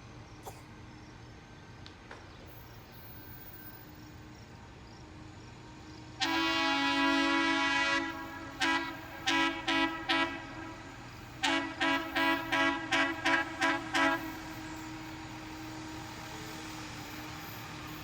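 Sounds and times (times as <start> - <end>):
locomotive air horn: 6.2 - 14.6.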